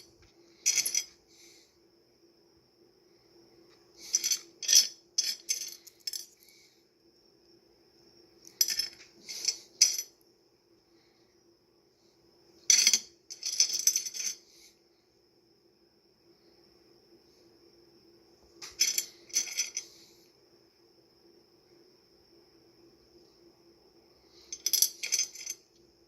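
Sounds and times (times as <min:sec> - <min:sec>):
stones clinking and rattling: 0:00.0 - 0:01.2, 0:04.0 - 0:06.4, 0:08.5 - 0:10.2, 0:12.7 - 0:14.4, 0:18.6 - 0:19.9, 0:24.5 - 0:25.7
faint high-pitched whine: 0:00.0 - 0:26.0.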